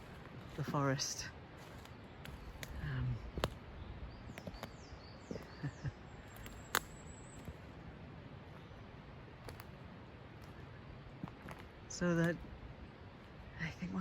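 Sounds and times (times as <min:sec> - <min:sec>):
small bird calling: 0:00.0 - 0:14.0
sharp clicks: 0:06.3 - 0:07.6.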